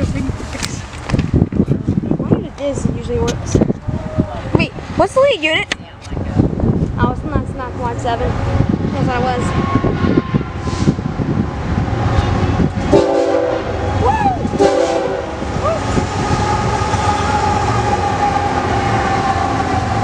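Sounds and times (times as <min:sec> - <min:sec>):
locomotive engine rumble: 0:00.0 - 0:20.0
train horn blasts: 0:09.4 - 0:11.0, 0:12.9 - 0:13.9, 0:14.6 - 0:15.4.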